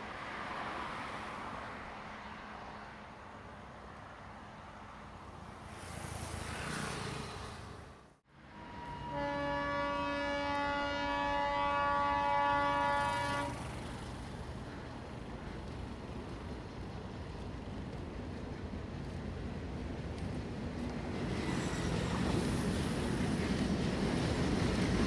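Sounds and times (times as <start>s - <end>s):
train horn blast: 8.4s - 13.8s
train rumbling along track: 8.6s - 25.0s.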